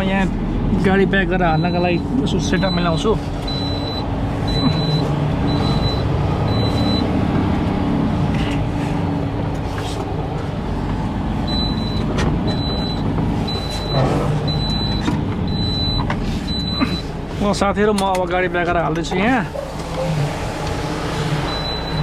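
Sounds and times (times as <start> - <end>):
diesel truck engine running: 0.0 - 22.0
high electronic beep: 1.5 - 7.1, 11.5 - 17.0, 21.5 - 22.0.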